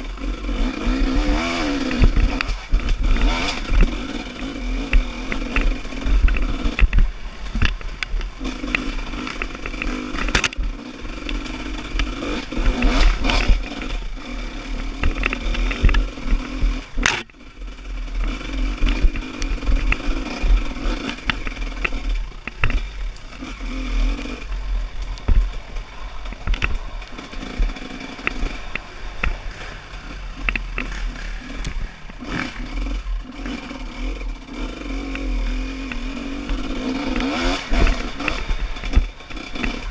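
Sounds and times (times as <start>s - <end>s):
motorcycle engine revving: 0.0s - 39.9s
bike knocks and clatter: 4.8s - 13.7s, 15.0s - 17.4s, 25.1s - 33.5s.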